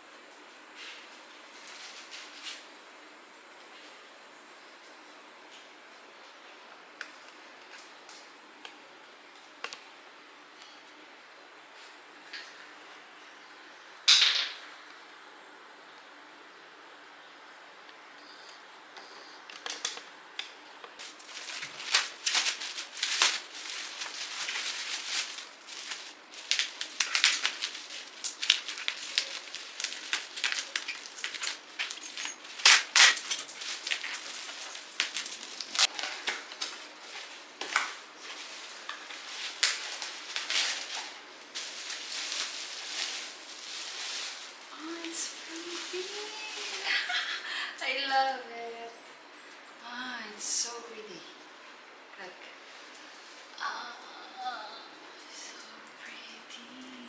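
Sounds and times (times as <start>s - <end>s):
scraping and rustling: 21.0s - 47.0s.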